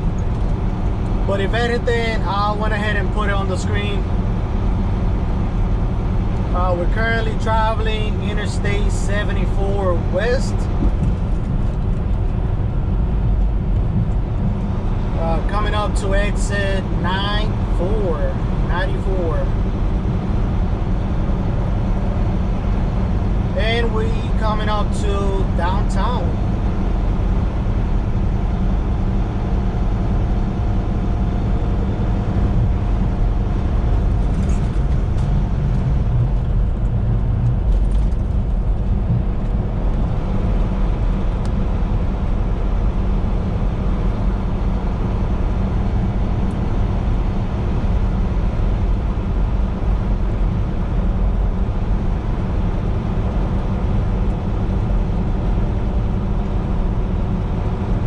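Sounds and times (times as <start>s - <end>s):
road noise: 0.0s - 58.0s
truck engine drone: 0.0s - 58.0s.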